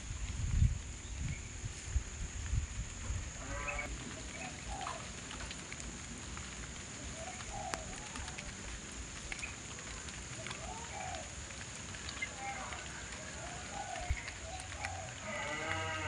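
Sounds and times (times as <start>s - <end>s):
low outdoor rumble: 0.0s - 16.0s
bird calls: 3.4s - 5.2s, 7.0s - 8.5s, 10.3s - 16.0s.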